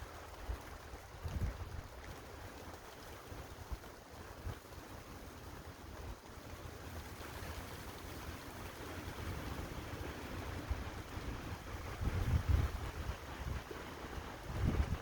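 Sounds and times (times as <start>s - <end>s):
wind gusts buffeting microphone: 0.4s - 2.0s, 9.9s - 15.0s
storm wind blowing hard: 11.7s - 13.8s, 14.4s - 15.0s.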